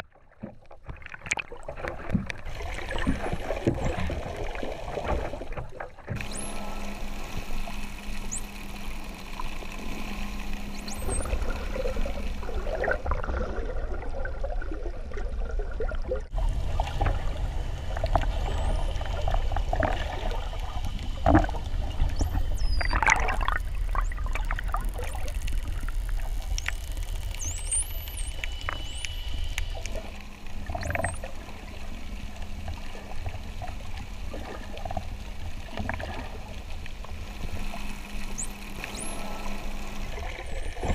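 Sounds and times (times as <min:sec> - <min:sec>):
bubbling sloshing water: 0:00.0 - 0:40.9
low steady hum: 0:01.6 - 0:40.9
dolphins whistling: 0:06.2 - 0:12.9, 0:18.0 - 0:24.3, 0:26.4 - 0:31.5, 0:37.8 - 0:40.9
dolphin clicks: 0:21.2 - 0:31.4, 0:37.7 - 0:40.9.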